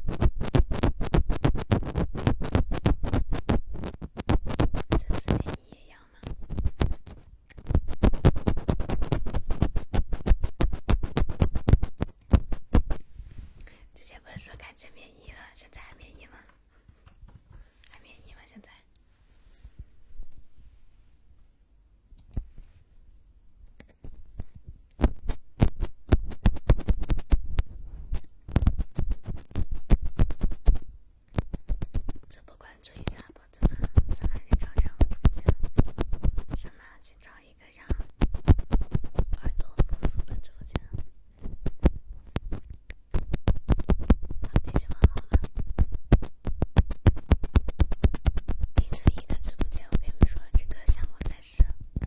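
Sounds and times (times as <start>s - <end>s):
fast scratching strokes: 0.0s - 5.6s, 6.2s - 13.0s, 24.0s - 32.3s, 33.0s - 51.7s.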